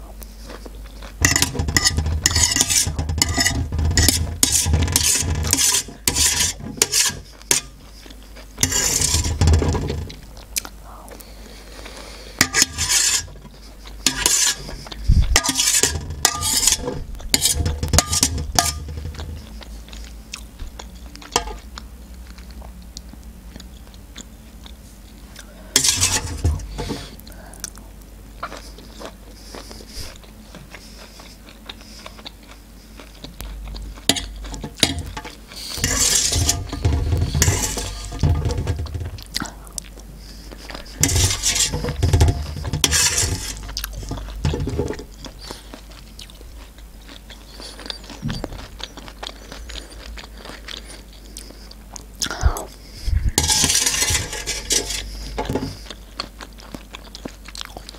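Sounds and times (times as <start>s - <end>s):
fork scraping on metal tray: 1.2s - 7.8s, 8.6s - 10.2s, 12.4s - 14.8s, 15.4s - 19.5s, 25.8s - 27.2s, 34.1s - 39.1s, 40.9s - 45.1s, 53.4s - 55.8s
chewing: 7.2s - 8.6s, 10.3s - 12.4s, 19.0s - 25.7s, 27.1s - 37.5s, 39.2s - 41.8s, 42.4s - 52.9s, 55.0s - 57.9s.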